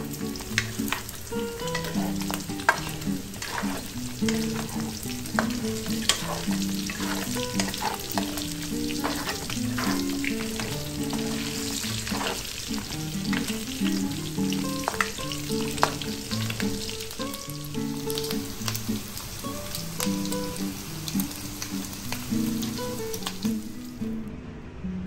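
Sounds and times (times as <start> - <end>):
meat sizzling in a pan: 0.0 - 23.9
soft background music: 0.0 - 25.0
wooden spatula scraping a pan: 0.6 - 13.7.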